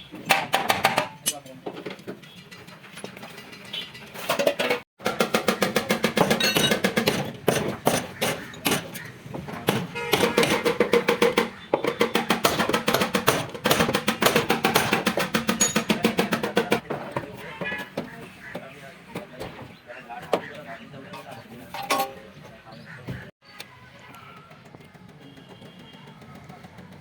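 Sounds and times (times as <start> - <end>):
hammer striking steel: 9.7 - 16.8.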